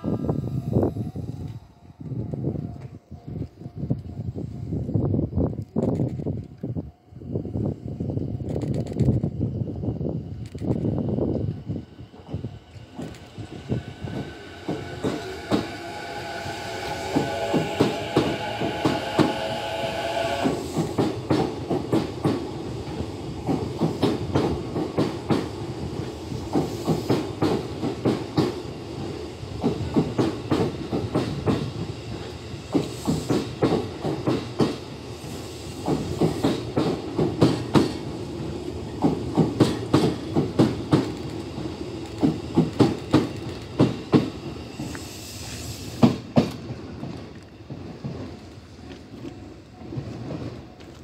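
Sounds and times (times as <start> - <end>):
train rumble: 0.0 - 51.0
train wheels clacking on rails: 12.1 - 51.0.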